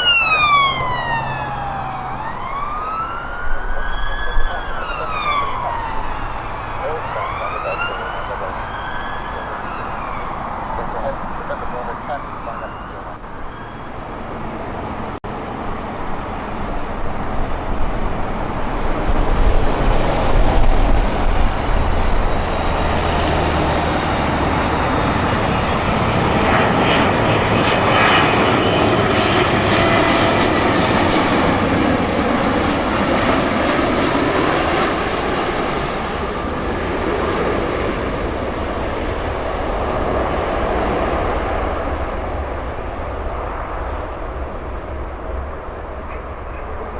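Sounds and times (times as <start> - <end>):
loud engine with rushing sound: 0.0 - 46.9.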